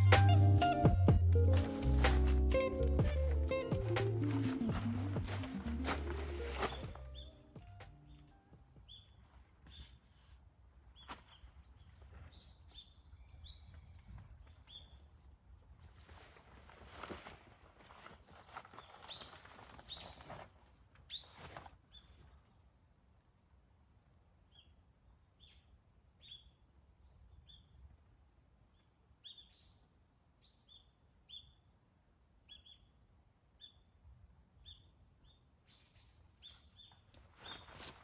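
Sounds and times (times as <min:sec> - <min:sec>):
rustling: 0:01.3 - 0:07.7, 0:15.8 - 0:22.4, 0:37.2 - 0:38.0
faint bird chirps: 0:05.2 - 0:10.3, 0:10.9 - 0:16.4, 0:18.7 - 0:20.5, 0:21.1 - 0:38.0.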